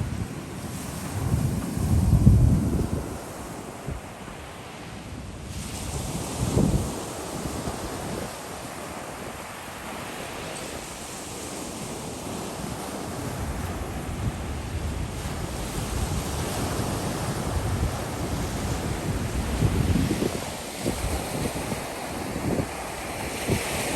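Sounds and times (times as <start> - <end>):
wind buffeting microphone: 0.0 - 4.4, 5.1 - 23.9
surf washing onto beach: 0.0 - 23.9.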